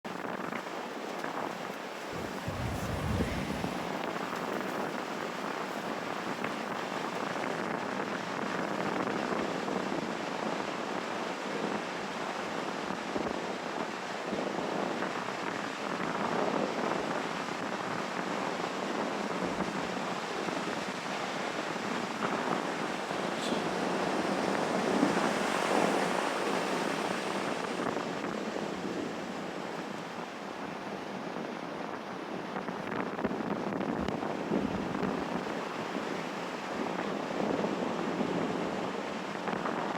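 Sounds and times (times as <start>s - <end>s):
sea waves washing onto shore: 0.1s - 7.4s.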